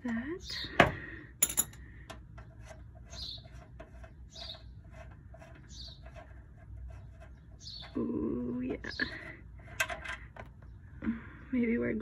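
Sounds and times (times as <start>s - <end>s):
bird chirping: 0.1s - 1.1s, 2.4s - 9.4s.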